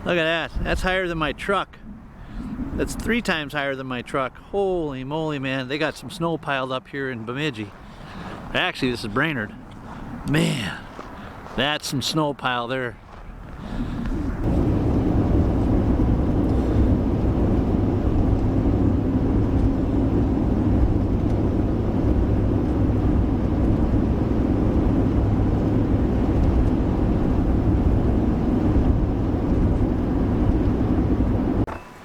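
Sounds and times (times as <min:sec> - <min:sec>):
road and engine noise inside truck: 0:13.3 - 0:32.0.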